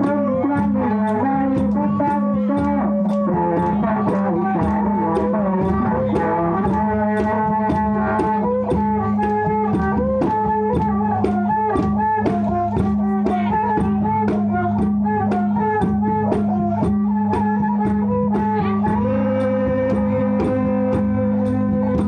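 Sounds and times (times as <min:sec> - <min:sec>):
percussion strikes: 0:00.0 - 0:22.0
wavering bending melody: 0:00.0 - 0:22.0.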